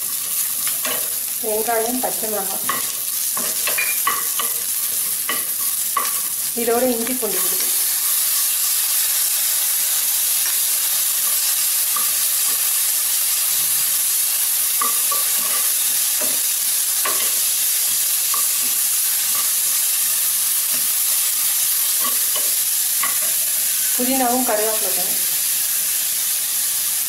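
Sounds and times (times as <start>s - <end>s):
food sizzling in oil: 0.0s - 27.0s
spatula clicking on pan: 2.6s - 6.3s, 14.8s - 16.4s, 17.0s - 17.4s.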